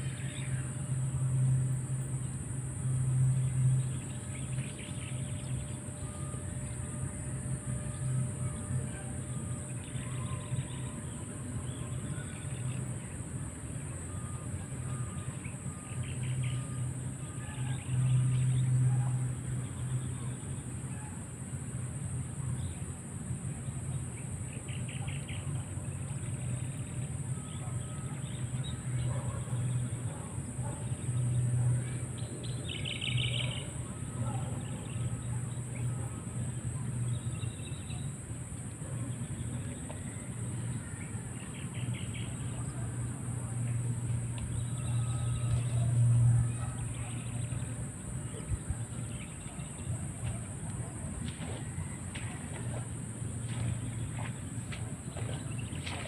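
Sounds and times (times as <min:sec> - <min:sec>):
birds chirping in trills: 0:23.9 - 0:42.9.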